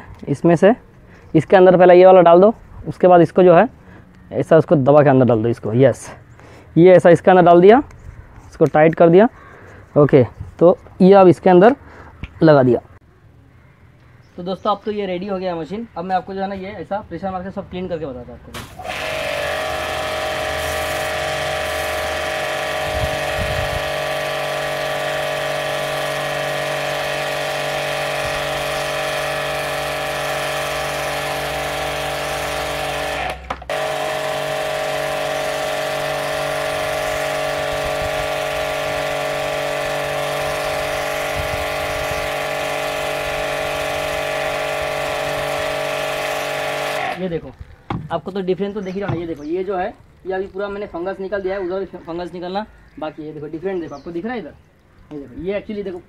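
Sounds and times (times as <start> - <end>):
water jet spraying a wall: 18.5 - 47.2
pressure washer motor whine: 18.6 - 47.2.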